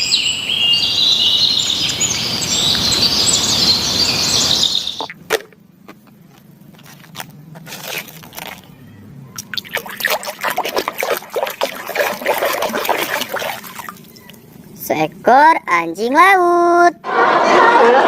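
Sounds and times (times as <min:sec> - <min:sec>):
birds chirping: 0:00.0 - 0:05.2, 0:08.2 - 0:14.8.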